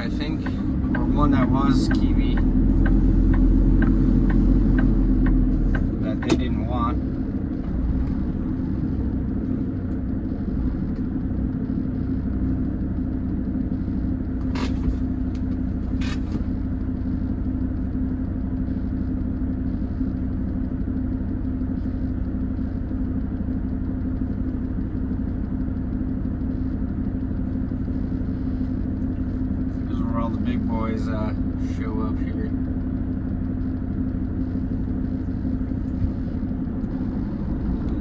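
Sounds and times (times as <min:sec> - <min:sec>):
truck diesel engine and road rumble: 0:00.0 - 0:38.0.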